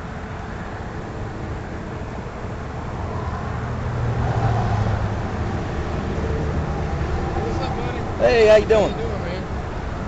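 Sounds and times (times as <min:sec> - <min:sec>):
road traffic rumble: 0:00.0 - 0:10.0
vehicle passing: 0:02.8 - 0:09.8.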